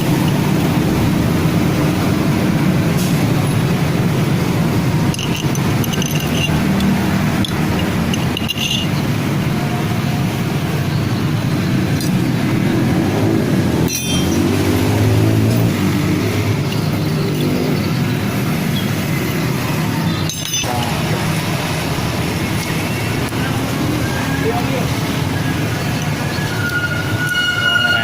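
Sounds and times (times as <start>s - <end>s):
vehicle engine running: 0.0s - 26.6s.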